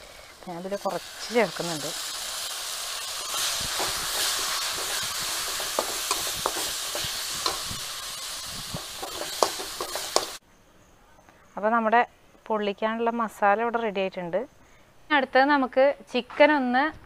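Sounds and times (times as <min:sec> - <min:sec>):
paste sizzling in hot oil: 0:00.0 - 0:10.4
metal spatula scraping a wok: 0:02.0 - 0:10.4.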